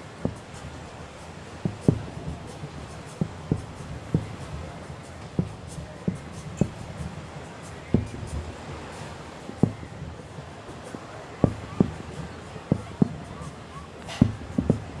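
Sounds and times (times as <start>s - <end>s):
fireworks booming: 1.6s - 7.1s, 14.1s - 14.9s.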